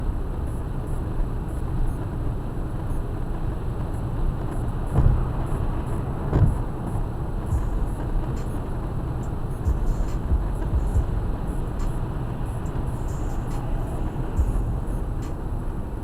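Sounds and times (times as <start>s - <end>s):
car driving on highway: 0.0s - 16.0s
short low thumps: 7.5s - 8.4s, 9.7s - 12.0s, 14.4s - 15.4s.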